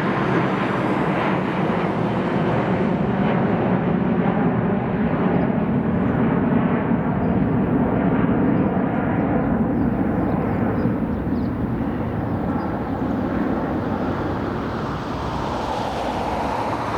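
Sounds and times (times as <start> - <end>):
jet engine rumble: 0.0 - 16.9.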